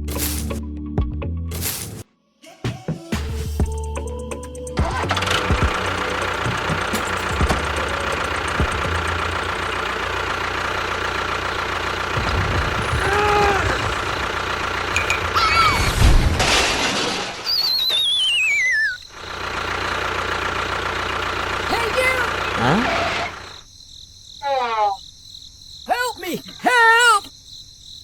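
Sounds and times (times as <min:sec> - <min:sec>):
engine running with whine: 0:04.2 - 0:15.5, 0:18.6 - 0:23.7
falling warbling whistle: 0:17.4 - 0:19.1.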